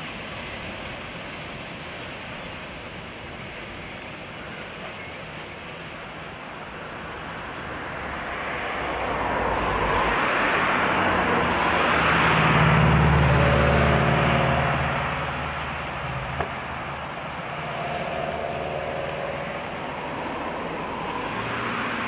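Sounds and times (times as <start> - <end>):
train passing: 0.0 - 22.0
deep hum: 14.2 - 21.4.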